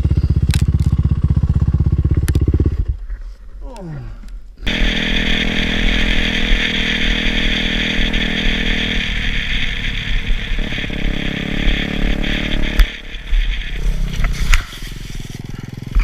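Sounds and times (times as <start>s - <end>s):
motorcycle engine running: 0.0s - 3.1s, 4.6s - 16.0s
constant hiss: 3.0s - 15.6s.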